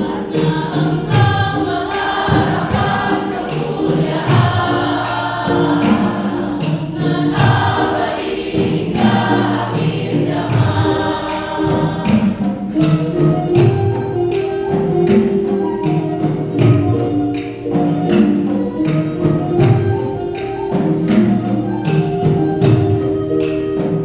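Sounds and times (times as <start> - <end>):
choir singing a hymn: 0.0 - 13.3.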